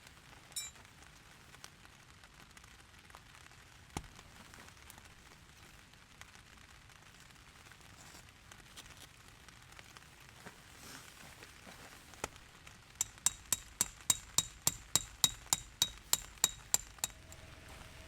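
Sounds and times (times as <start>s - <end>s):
hammer striking metal tent peg: 13.0s - 17.9s.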